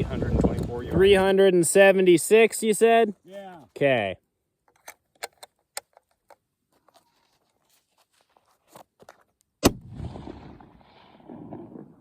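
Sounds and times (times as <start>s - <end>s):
wind buffeting microphone: 0.0s - 1.4s.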